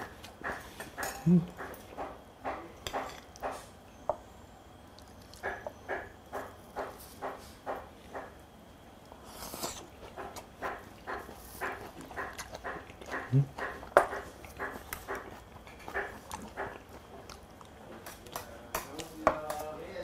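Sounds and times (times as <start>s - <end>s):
wet chewing mouth smacks: 9.0s - 19.2s.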